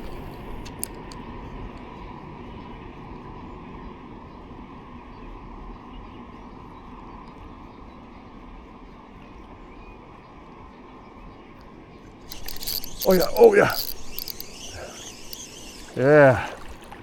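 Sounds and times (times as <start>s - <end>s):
river current rushing: 12.3s - 17.0s.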